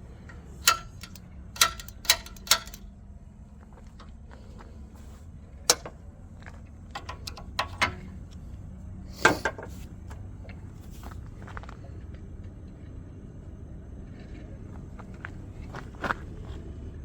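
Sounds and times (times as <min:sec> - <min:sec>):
steady low hum: 0:00.0 - 0:17.0
metal tools clanking: 0:00.1 - 0:02.9, 0:05.7 - 0:06.0, 0:06.9 - 0:08.3, 0:09.2 - 0:09.8.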